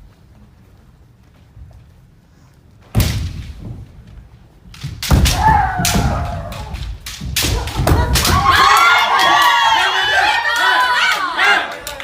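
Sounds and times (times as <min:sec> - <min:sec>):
bamboo swords striking: 0:02.9 - 0:03.8, 0:04.7 - 0:09.6
high shout: 0:07.5 - 0:12.0.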